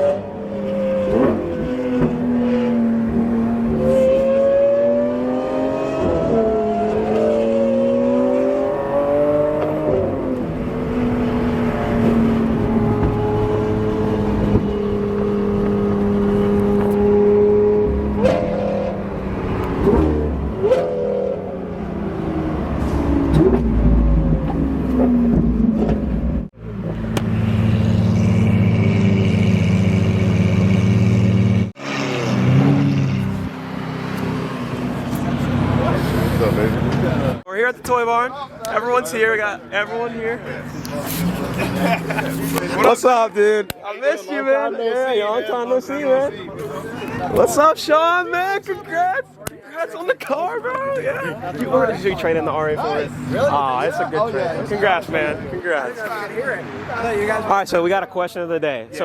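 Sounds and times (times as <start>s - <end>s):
sports car engines accelerating: 0.0s - 37.5s, 39.6s - 43.0s.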